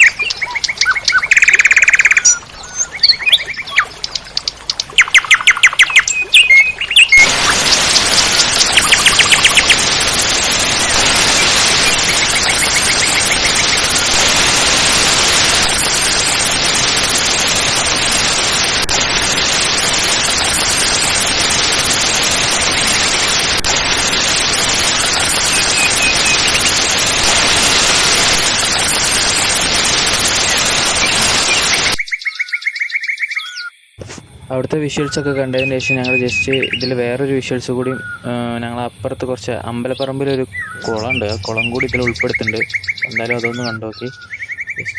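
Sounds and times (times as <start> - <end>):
birds chirping: 0.0 - 34.2, 34.8 - 44.9
waterfall rushing: 7.2 - 32.0.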